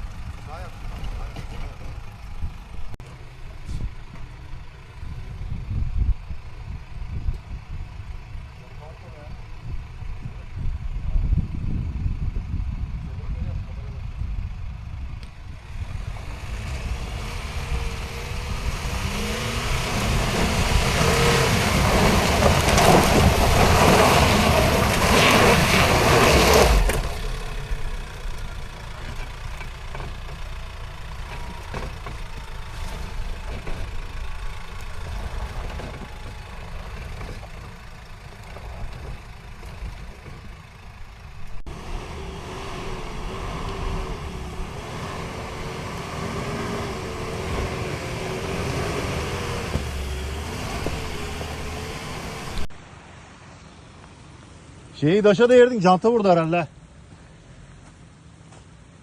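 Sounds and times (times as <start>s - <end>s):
off-road vehicle engine: 0.0s - 59.0s.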